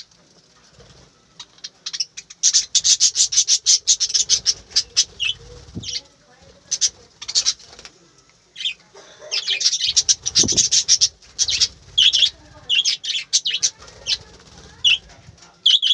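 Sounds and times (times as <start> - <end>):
budgerigars chirping: 1.4 - 6.0, 6.6 - 7.8, 8.6 - 15.0, 15.6 - 15.9.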